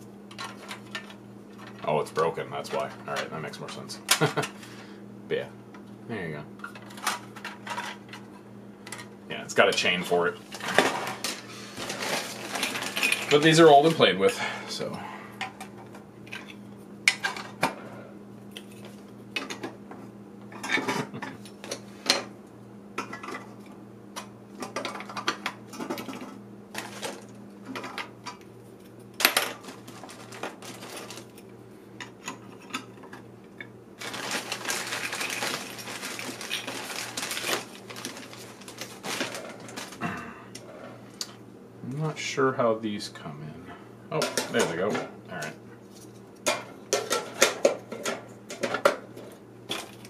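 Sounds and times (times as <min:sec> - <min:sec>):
rustling: 0:34.0 - 0:40.0.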